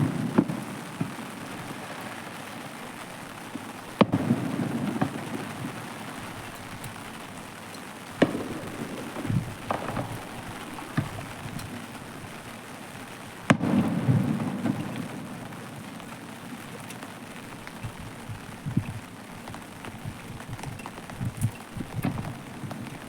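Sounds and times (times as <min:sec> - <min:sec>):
firework shells bursting: 0:00.0 - 0:15.4
light firework pops: 0:00.0 - 0:23.0
steady background hiss: 0:00.0 - 0:23.0
deep rolling rumble: 0:08.2 - 0:12.6.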